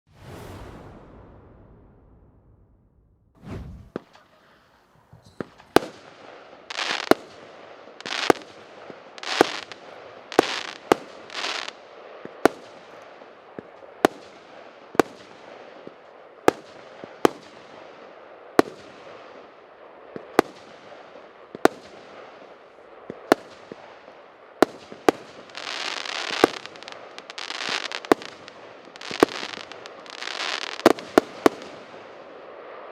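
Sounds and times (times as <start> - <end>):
firework bangs: 0.1 - 13.0, 23.1 - 32.8
firework crackling hiss: 3.4 - 7.2, 8.0 - 13.0, 24.9 - 32.0.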